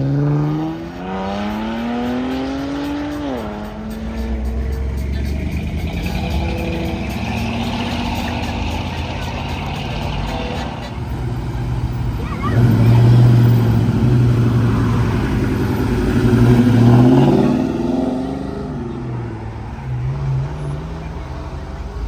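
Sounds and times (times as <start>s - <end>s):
car engine accelerating: 0.0s - 22.0s
engine idling: 1.2s - 22.0s.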